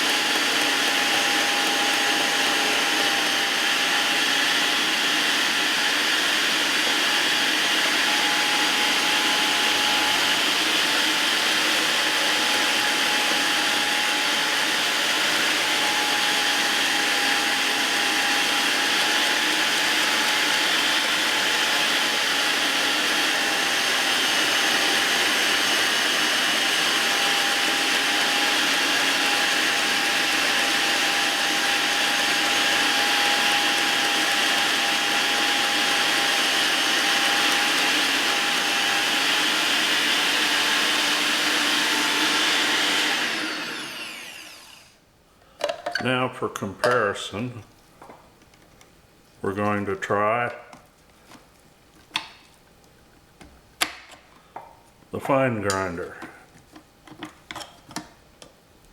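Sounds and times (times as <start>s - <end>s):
electric meat grinder whining: 0.0s - 45.0s.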